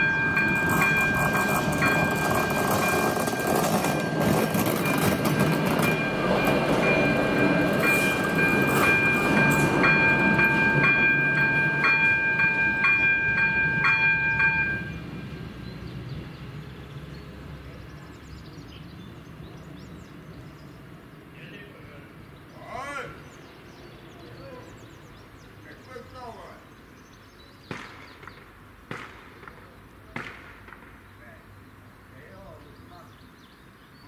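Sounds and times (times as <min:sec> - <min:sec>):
crossing bell two-tone chime: 0:00.0 - 0:15.1
train passing with loud rumble: 0:00.0 - 0:25.7.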